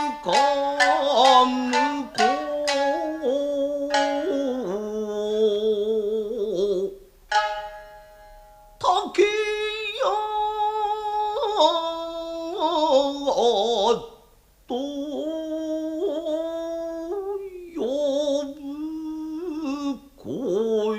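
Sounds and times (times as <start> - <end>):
shamisen plucks: 0.0 - 9.2.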